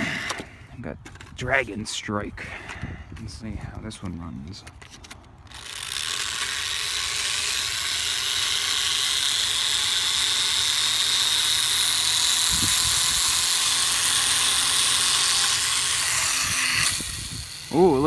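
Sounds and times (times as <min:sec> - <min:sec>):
toy plane propeller whirring: 0:04.7 - 0:18.0.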